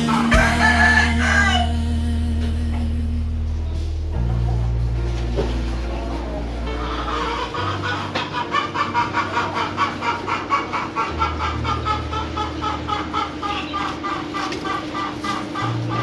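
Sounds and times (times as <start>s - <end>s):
held bass notes: 0.0s - 9.6s.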